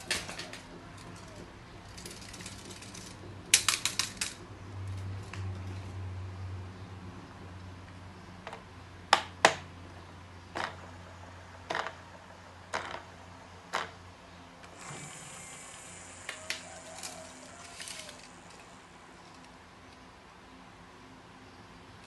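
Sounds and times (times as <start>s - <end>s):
sharp mechanical clicks: 0.0s - 4.4s.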